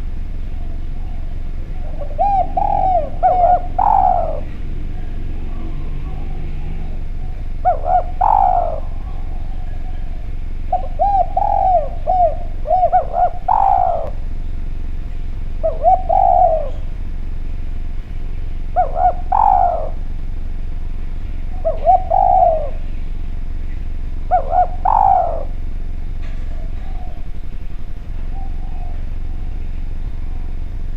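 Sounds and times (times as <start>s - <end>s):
dove cooing: 0.0s - 17.3s, 18.4s - 20.4s, 21.2s - 30.9s
low background hum: 0.0s - 30.9s.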